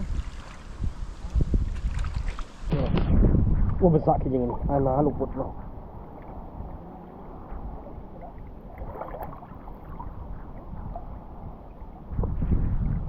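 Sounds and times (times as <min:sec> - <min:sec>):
person wading through water: 0:00.0 - 0:02.7, 0:05.8 - 0:12.4.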